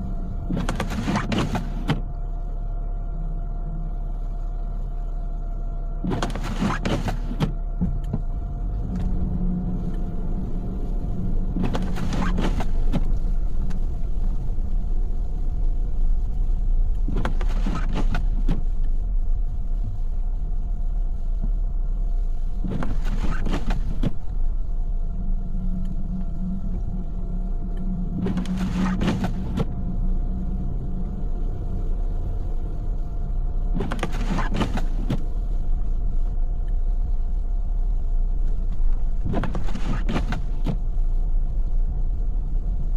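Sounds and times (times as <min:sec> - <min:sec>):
car engine and road rumble: 0:00.0 - 0:42.9
faint steady hum: 0:00.0 - 0:42.9
windshield wipers scraping: 0:00.4 - 0:02.2, 0:06.0 - 0:14.7, 0:16.5 - 0:19.0, 0:21.4 - 0:30.8, 0:32.8 - 0:37.4, 0:38.3 - 0:41.3.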